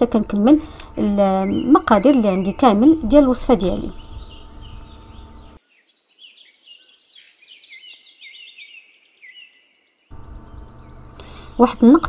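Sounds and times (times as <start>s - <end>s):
low steady hum: 0.0s - 5.6s, 10.1s - 12.0s
faint bird twittering: 1.0s - 12.0s.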